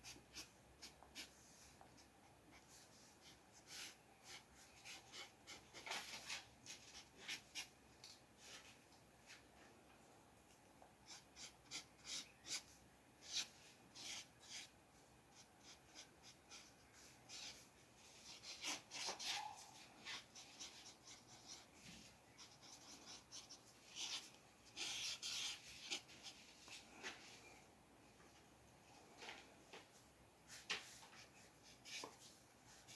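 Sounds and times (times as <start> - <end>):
pencil scratching on paper: 0.0 - 7.7, 11.0 - 14.7, 15.3 - 26.8.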